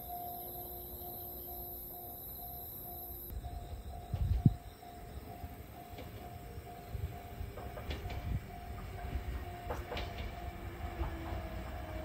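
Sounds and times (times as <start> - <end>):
bell-like tone: 0.0 - 7.4
train rumble: 0.0 - 12.0
wheel clicks over rail joints: 7.4 - 12.0.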